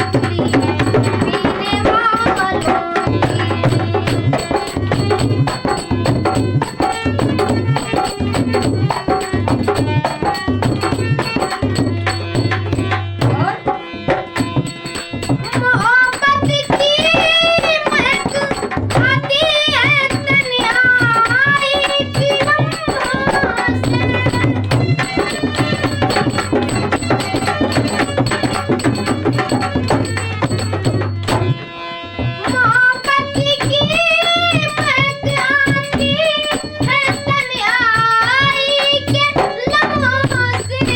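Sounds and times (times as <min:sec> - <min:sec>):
tabla rhythm: 0:00.0 - 0:40.9
wavering melody: 0:19.2 - 0:40.9.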